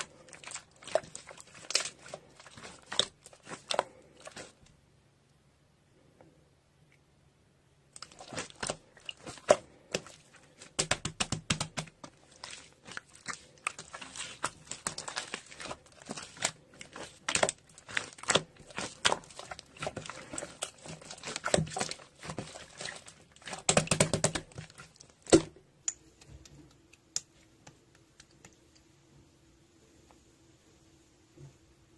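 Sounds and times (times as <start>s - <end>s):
slime crackling and popping: 0.0s - 4.6s, 7.9s - 25.5s.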